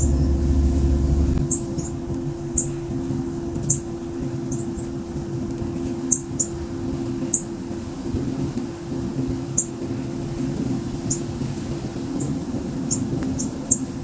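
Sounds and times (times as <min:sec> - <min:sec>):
steady low hum: 0:00.0 - 0:14.0
small birds chirping: 0:01.4 - 0:02.8, 0:06.0 - 0:06.6.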